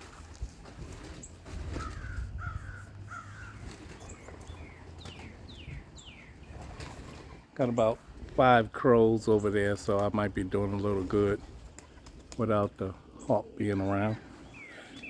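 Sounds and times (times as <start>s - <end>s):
crows cawing: 1.8s - 3.7s.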